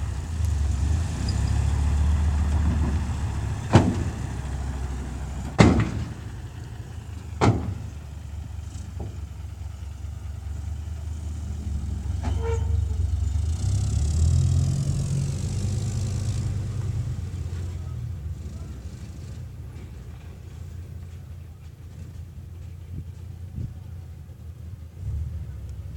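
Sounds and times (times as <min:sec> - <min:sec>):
diesel truck engine rumbling: 0:00.0 - 0:25.9.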